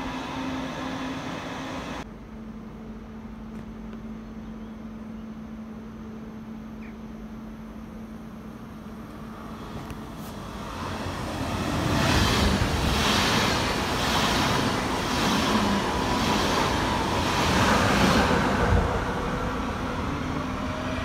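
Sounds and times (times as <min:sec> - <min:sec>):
train wheels rolling on rails: 0:09.0 - 0:21.0.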